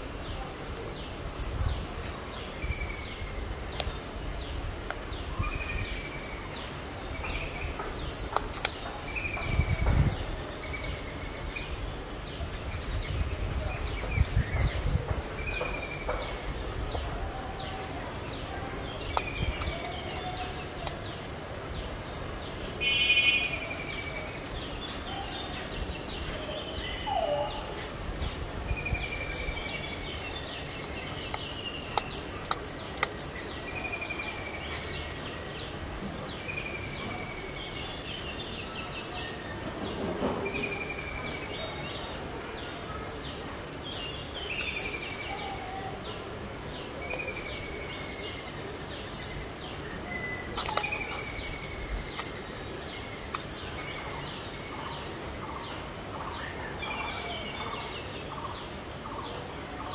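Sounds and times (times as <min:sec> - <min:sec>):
high ticking: 0:00.3 - 0:02.2, 0:07.8 - 0:10.4, 0:12.6 - 0:17.0, 0:18.8 - 0:21.1, 0:27.5 - 0:33.3, 0:46.6 - 0:47.5, 0:48.7 - 0:52.4, 0:53.2 - 0:53.5.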